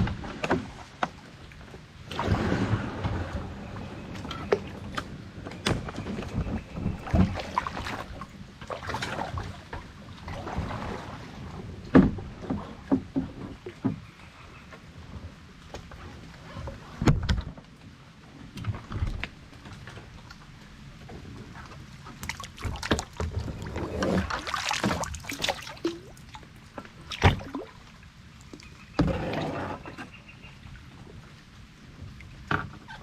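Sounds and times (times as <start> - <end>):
water splashing from paddle: 2.0 - 14.0, 21.4 - 30.2.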